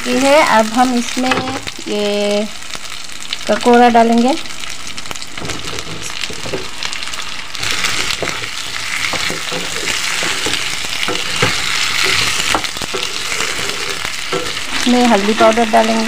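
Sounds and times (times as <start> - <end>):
vegetables sizzling in oil: 0.0 - 16.0
spatula scraping a pan: 5.4 - 16.0.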